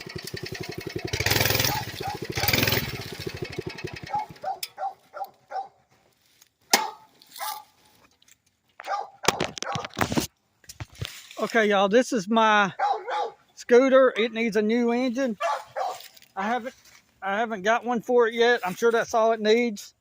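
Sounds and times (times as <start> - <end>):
small engine running: 0.0 - 4.6
dog yipping: 1.6 - 2.3, 4.1 - 5.8, 8.8 - 9.8, 12.8 - 13.4, 15.4 - 16.0.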